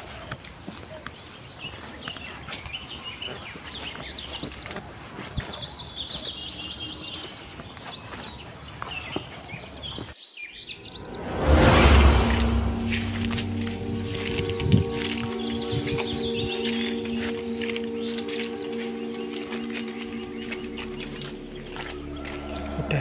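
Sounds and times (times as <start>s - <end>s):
small birds chirping: 0.0s - 11.3s, 13.8s - 23.0s
loud rushing noise: 10.8s - 17.8s.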